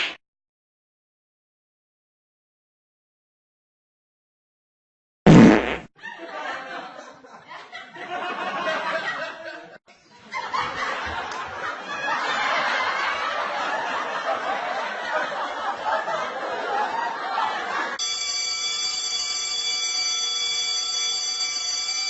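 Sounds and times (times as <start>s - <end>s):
crowd laughing: 6.0s - 18.0s.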